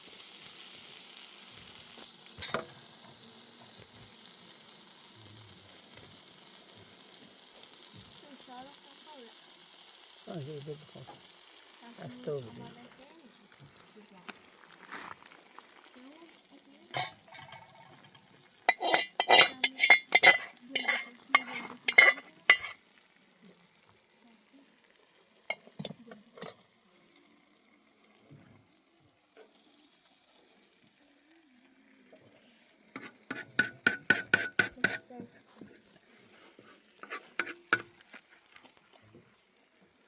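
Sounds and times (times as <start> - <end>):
metallic clinks and scraping: 18.7 - 22.8.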